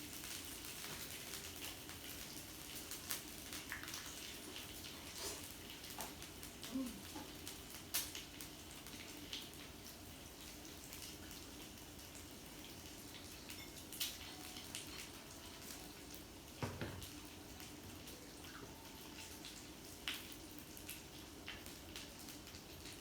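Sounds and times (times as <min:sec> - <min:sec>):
small clicks and crackles: 0:00.0 - 0:09.7.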